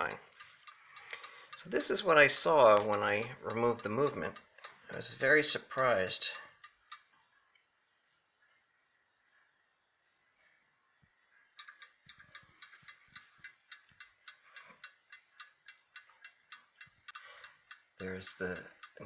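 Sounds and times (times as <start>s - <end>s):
clock ticking rapidly: 0.0s - 7.1s, 11.6s - 19.0s.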